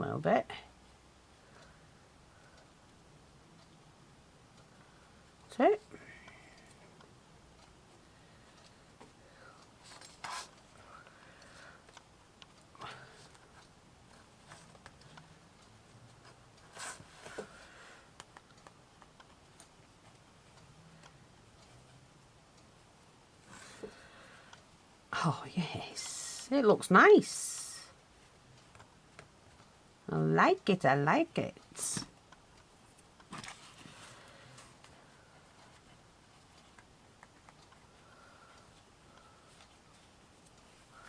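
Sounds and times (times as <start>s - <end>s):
small faint clicks: 8.5s - 21.9s.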